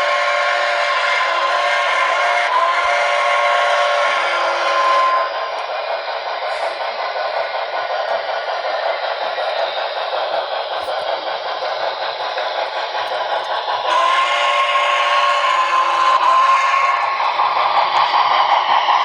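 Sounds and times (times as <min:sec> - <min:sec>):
train whistle: 0:00.0 - 0:05.6, 0:13.8 - 0:17.3
rushing train noise: 0:00.0 - 0:19.0.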